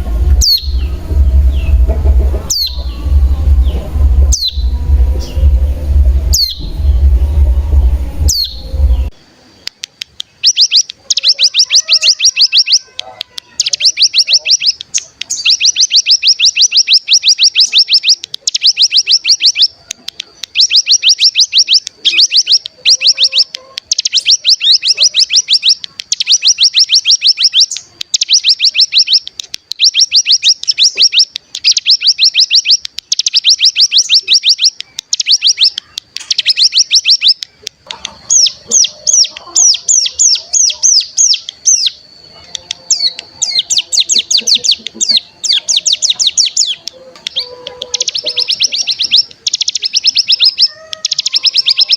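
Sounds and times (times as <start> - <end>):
buzzy bird trills: 0.0 - 9.2, 10.3 - 51.9
loud low hum: 0.0 - 9.2.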